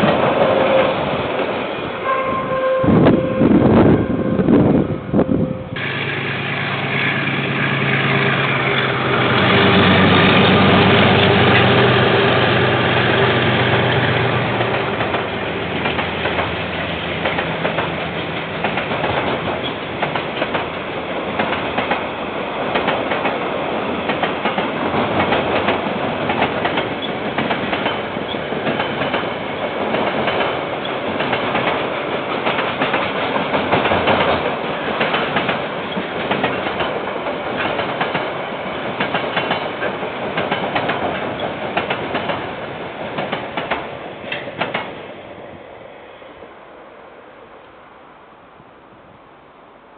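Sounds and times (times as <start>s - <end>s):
diesel locomotive engine throbbing: 2.8s - 22.8s
wagon wheels clacking over rail joints: 24.0s - 44.9s.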